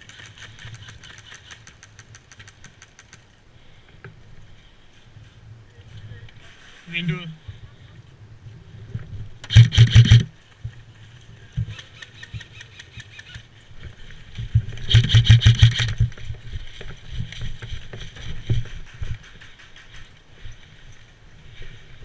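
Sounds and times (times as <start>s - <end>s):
faint gunshots and clicks: 9.4s - 10.3s, 14.8s - 16.1s
airsoft gun full-auto burst: 9.5s - 10.3s, 14.9s - 16.1s.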